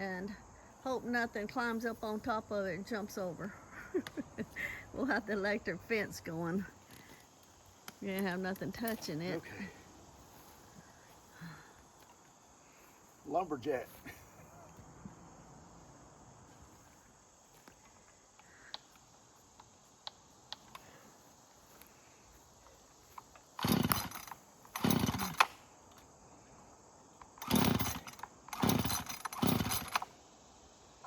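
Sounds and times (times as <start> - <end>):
chainsaw bursts: 23.5 - 25.6, 27.3 - 30.2.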